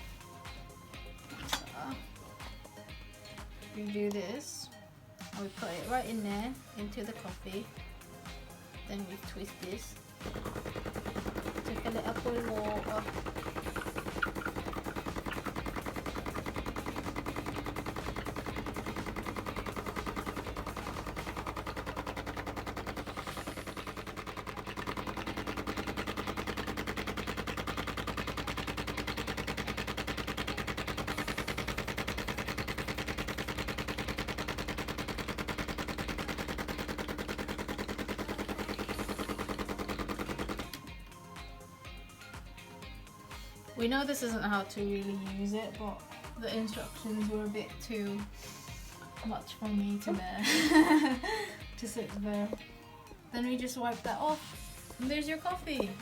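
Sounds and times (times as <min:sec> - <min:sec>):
espresso machine pump buzzing: 0:10.2 - 0:40.9.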